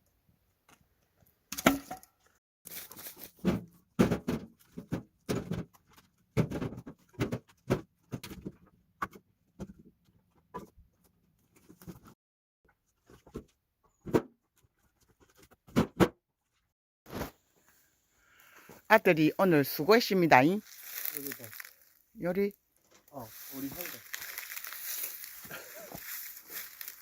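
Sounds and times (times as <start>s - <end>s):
wooden logs knocking and clattering: 1.5s - 2.1s, 3.2s - 9.9s, 23.8s - 27.0s.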